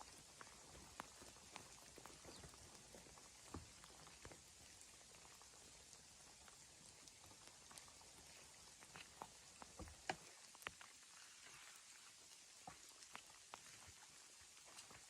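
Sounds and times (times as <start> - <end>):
faint steady hiss: 0.0 - 15.0
light ticks: 0.3 - 11.0.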